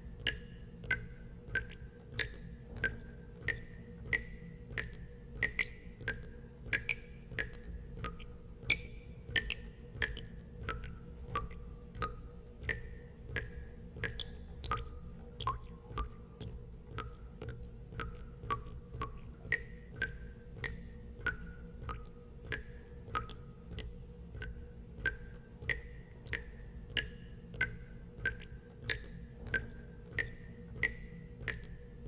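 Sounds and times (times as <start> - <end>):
low steady hum: 0.0 - 32.0
water dripping: 0.0 - 32.0.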